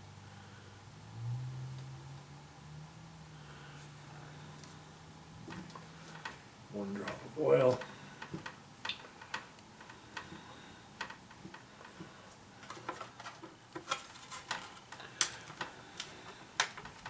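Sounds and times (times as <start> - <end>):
light clicks and taps of parts: 7.0 - 17.0.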